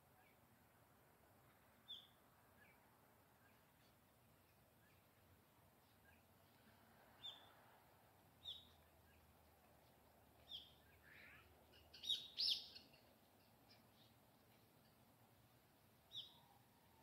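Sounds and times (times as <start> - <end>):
birds chirping: 8.4 - 9.6, 10.4 - 15.0, 16.0 - 17.0.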